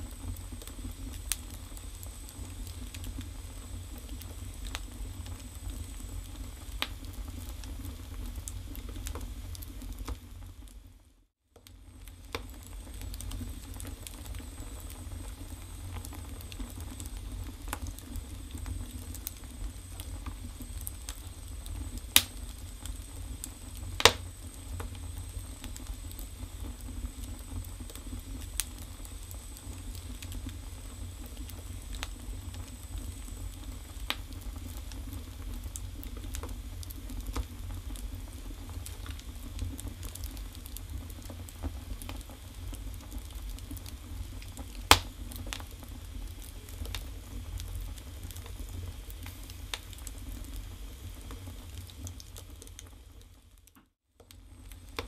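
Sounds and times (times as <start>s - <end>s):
fire crackling: 0.0s - 55.0s
fire rumbling in a stove: 0.0s - 55.0s
logs popping: 24.0s - 24.3s, 44.5s - 45.6s.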